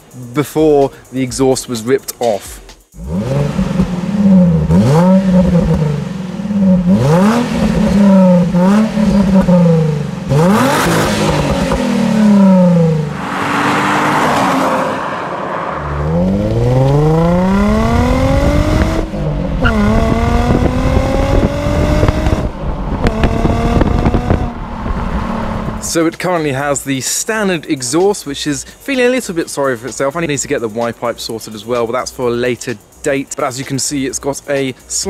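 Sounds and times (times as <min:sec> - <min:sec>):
car engine revving and accelerating: 0:02.9 - 0:26.0.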